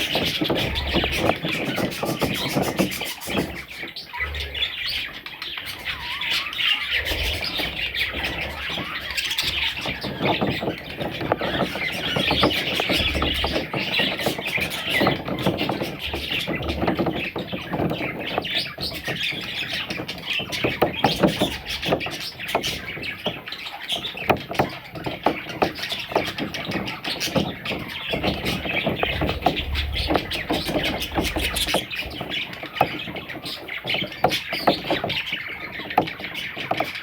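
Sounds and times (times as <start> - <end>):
budgerigars chattering and chirping: 0.0 - 37.0.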